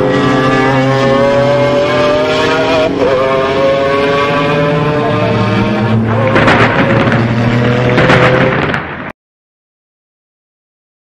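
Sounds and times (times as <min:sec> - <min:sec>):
car engine revving hard: 0:00.0 - 0:08.8.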